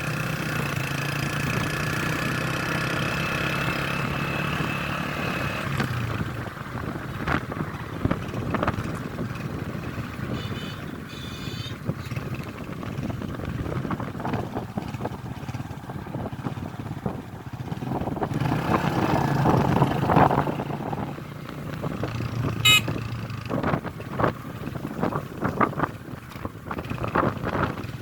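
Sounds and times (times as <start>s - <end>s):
wind buffeting microphone: 5.6s - 28.0s
vehicle engine running: 5.7s - 28.0s
high-pitched toot: 22.6s - 22.9s.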